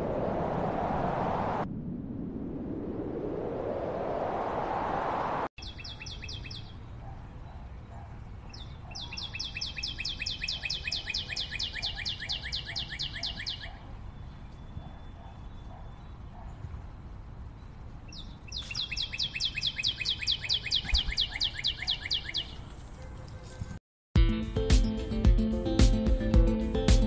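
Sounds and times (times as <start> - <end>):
songbird trilling: 5.6 - 6.8, 8.5 - 16.2, 18.1 - 22.6.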